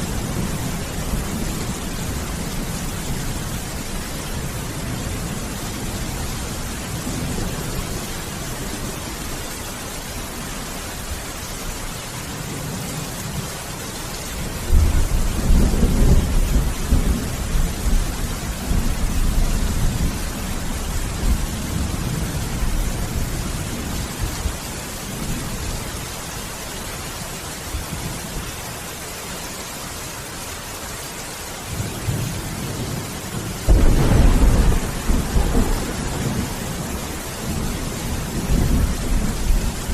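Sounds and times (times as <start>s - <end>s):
steady rain: 0.0s - 39.9s
rolling thunder: 14.5s - 24.5s, 31.8s - 39.9s
loud thunderclap: 33.6s - 39.9s.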